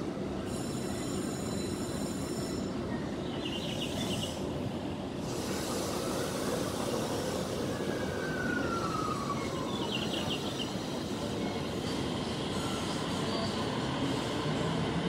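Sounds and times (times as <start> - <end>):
high wheel squeals: 0.5 - 2.8.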